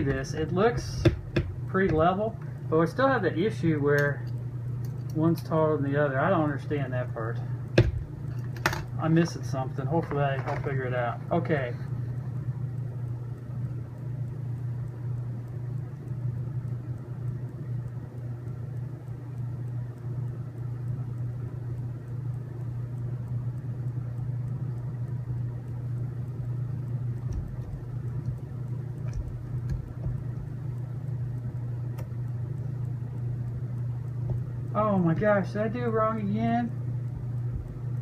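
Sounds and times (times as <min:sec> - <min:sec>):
steady low hum: 0:00.0 - 0:38.0
faint clicks and light knocks: 0:27.2 - 0:34.7, 0:37.0 - 0:38.0.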